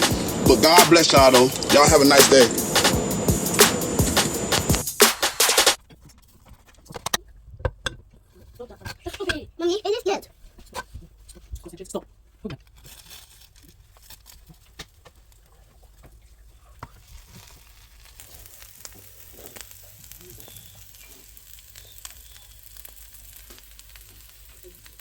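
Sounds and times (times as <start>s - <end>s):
food sizzling in a pan: 16.8s - 25.0s.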